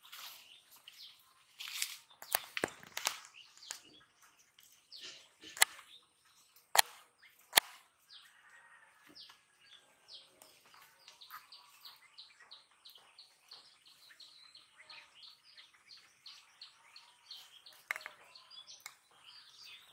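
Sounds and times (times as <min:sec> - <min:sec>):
faint bird chirps: 0:00.0 - 0:19.9
sharp clicks: 0:05.4 - 0:05.9, 0:06.6 - 0:07.9.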